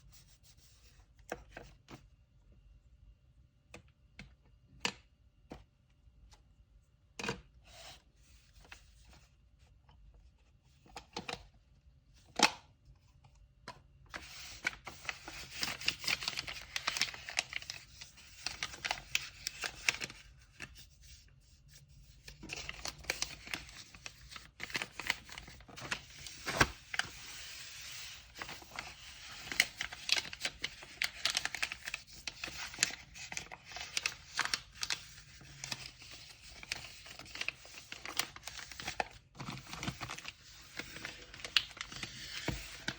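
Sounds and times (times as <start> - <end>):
paper crinkling and tearing: 14.2 - 20.6, 22.3 - 42.9.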